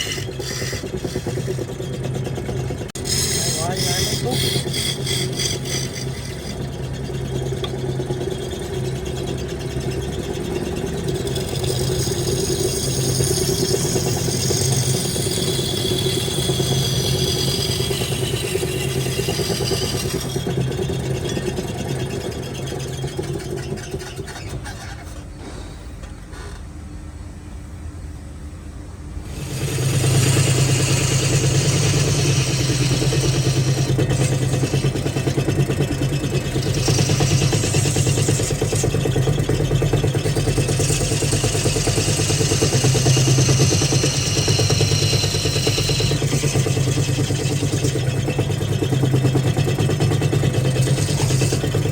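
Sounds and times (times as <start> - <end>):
wood lathe motor hum: 0.0 - 25.2, 29.2 - 51.9
hissing of wood being cut: 2.9 - 7.0, 11.2 - 20.7, 29.3 - 48.2, 50.1 - 51.9.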